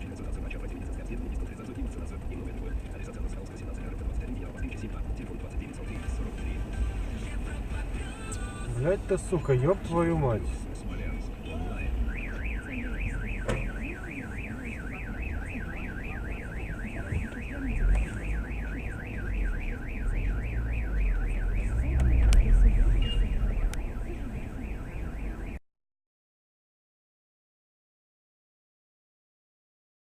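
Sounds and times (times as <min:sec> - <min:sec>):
car alarm siren warbling: 0:11.6 - 0:25.6
low rumble: 0:19.3 - 0:25.3.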